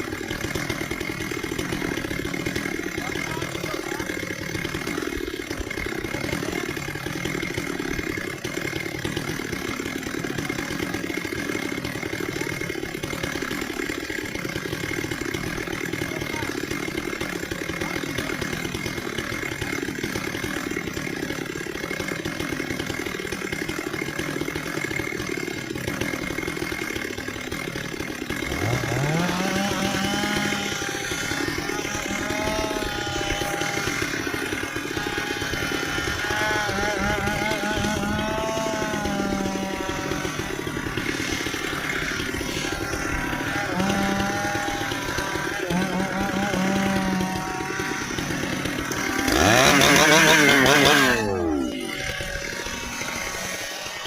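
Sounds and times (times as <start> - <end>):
chainsaw engine running: 0.0 - 54.0
engine revving whine: 28.5 - 54.0.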